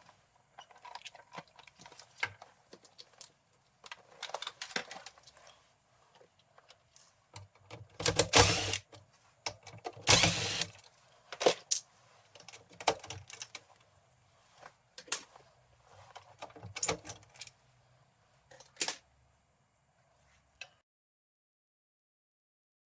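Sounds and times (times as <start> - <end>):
hard parts clicking and knocking: 7.4 - 10.7.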